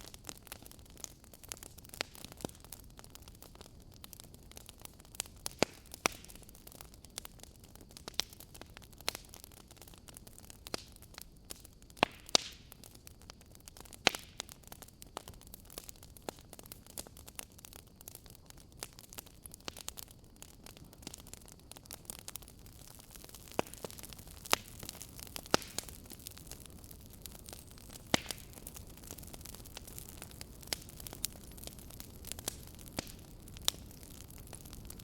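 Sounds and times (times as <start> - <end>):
faint steady hiss: 0.0 - 35.0
wood fire crackling: 0.0 - 35.0
sharp pops and snaps: 5.4 - 6.4, 11.5 - 12.9, 23.1 - 26.6, 27.5 - 28.7, 29.6 - 34.7.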